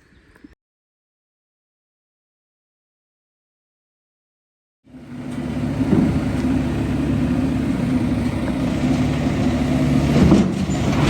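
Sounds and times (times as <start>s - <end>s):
heavy vehicle engine running: 4.9s - 11.0s.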